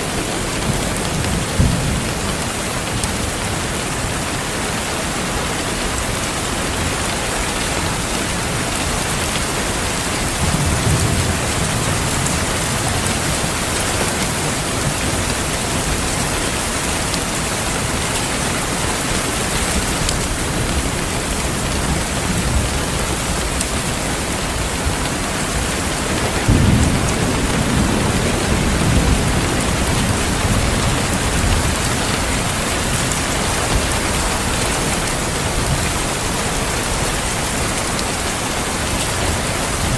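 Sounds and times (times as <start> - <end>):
heavy rain falling: 0.0 - 39.9
distant thunder rumbling: 18.8 - 37.1.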